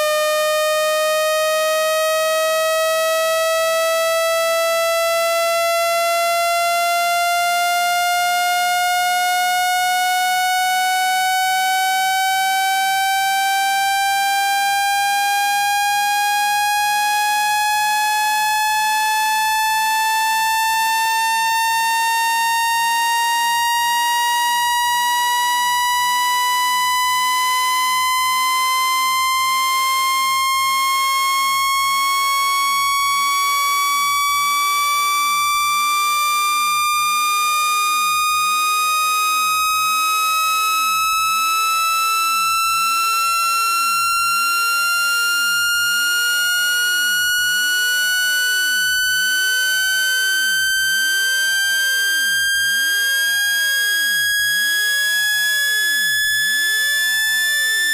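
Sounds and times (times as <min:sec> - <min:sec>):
electronic tone sliding upward: 0:45.2 - 0:57.9.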